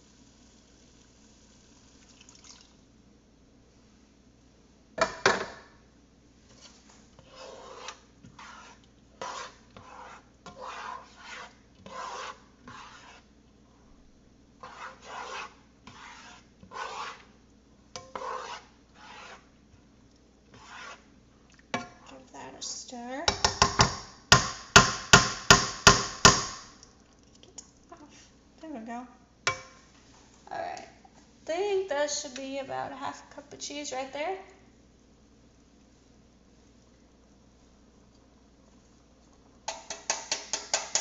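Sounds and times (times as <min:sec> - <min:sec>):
cheese grating rasps: 0:07.2 - 0:13.3, 0:14.6 - 0:17.3, 0:18.1 - 0:19.5
utensil knocking on pot: 0:23.3 - 0:26.7, 0:39.7 - 0:41.0.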